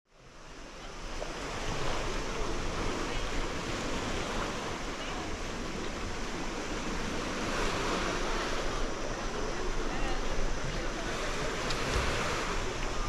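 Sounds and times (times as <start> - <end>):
sea waves washing onto beach: 0.2 - 13.0.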